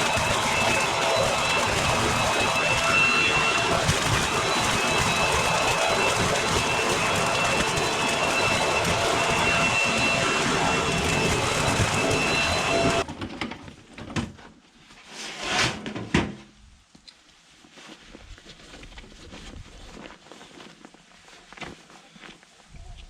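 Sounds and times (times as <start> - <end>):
garden blower rushing air: 0.0 - 13.1.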